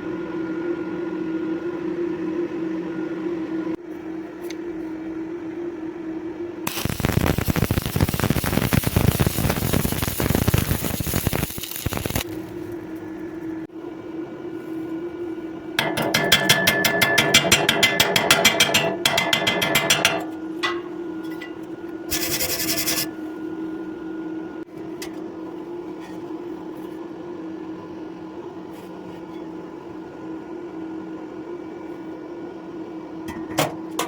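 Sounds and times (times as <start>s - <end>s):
steady hum: 5.1s - 24.7s
fast rasping strokes: 22.1s - 23.1s.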